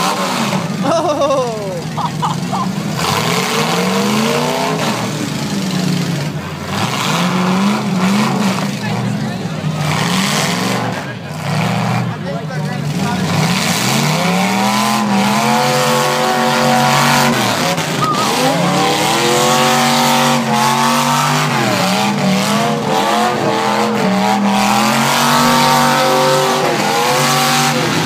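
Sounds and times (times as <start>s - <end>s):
car engines revving hard: 0.0s - 28.0s.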